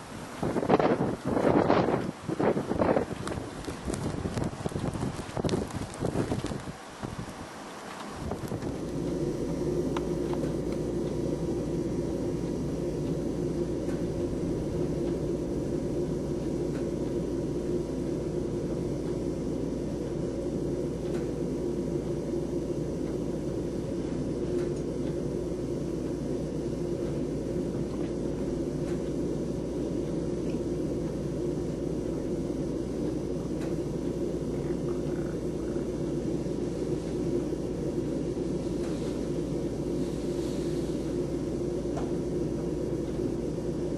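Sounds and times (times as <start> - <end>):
storm wind blowing: 0.0 - 16.7.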